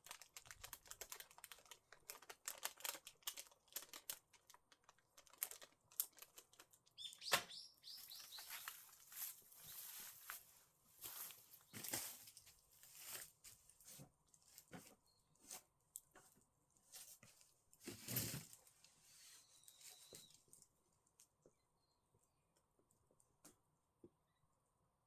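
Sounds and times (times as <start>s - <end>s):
crackles and rustling: 0.0s - 7.1s, 7.9s - 21.4s
thin whistle-like tone: 19.4s - 20.4s.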